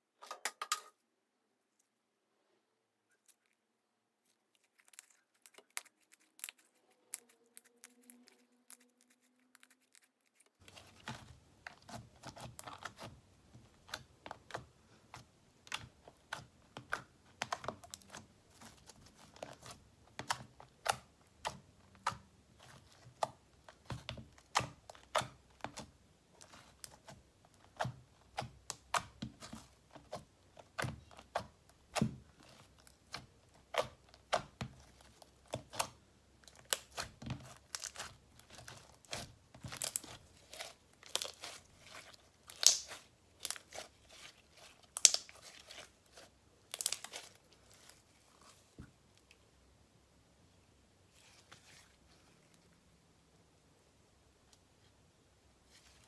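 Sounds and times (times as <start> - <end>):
slime squeezed with sticky clicks: 42.5 - 43.7.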